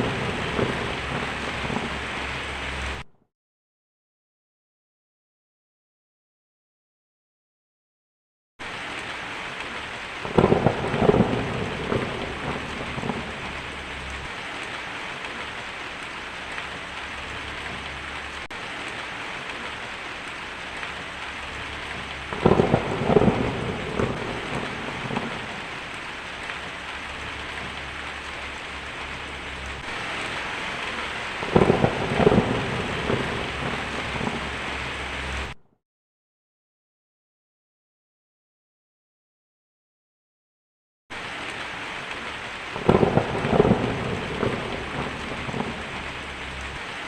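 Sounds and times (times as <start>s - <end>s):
thunder cracks and rumbles: 0.0s - 3.0s, 10.0s - 14.4s, 20.9s - 35.6s, 42.8s - 47.0s
steady rain hissing: 0.0s - 3.1s, 8.6s - 35.6s, 41.1s - 47.0s.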